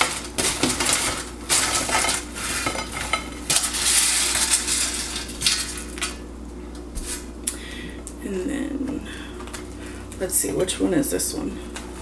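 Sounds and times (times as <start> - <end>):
fries clattering onto plates: 0.0 - 6.2.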